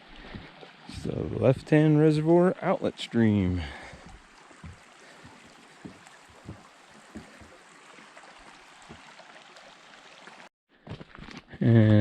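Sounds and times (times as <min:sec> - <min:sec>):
stream rushing: 0:00.0 - 0:10.5
soft low thumps: 0:03.7 - 0:07.6.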